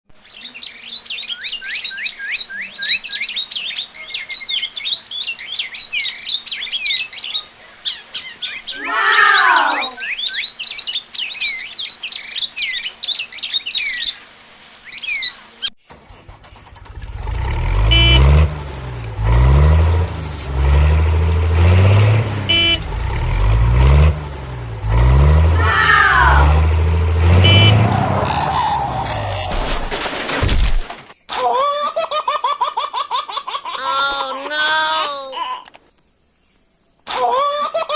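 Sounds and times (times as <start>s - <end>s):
birds chirping: 0.2s - 29.8s
loud low vehicle engine: 15.9s - 29.5s.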